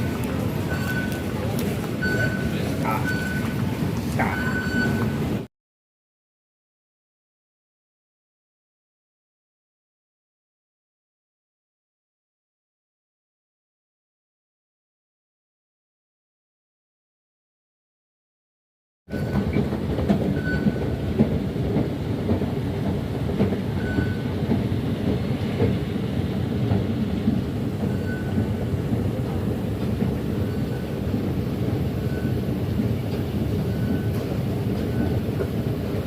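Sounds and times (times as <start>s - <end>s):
train wheels rumbling on rail: 0.0s - 5.5s, 19.1s - 36.0s.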